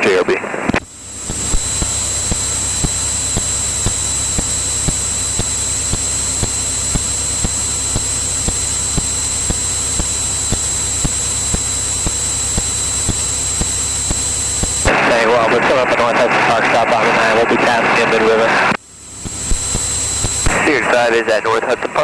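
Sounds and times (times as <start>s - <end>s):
airplane engine drone: 0.0s - 22.0s
high steady whine: 0.0s - 22.0s
sharp ticking: 1.1s - 14.9s, 19.2s - 20.6s.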